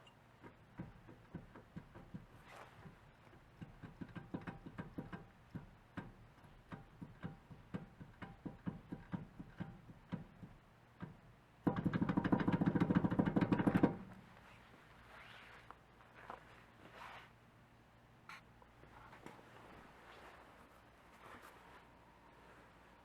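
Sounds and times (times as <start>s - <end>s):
wheel bearing clunking: 0.0s - 14.2s.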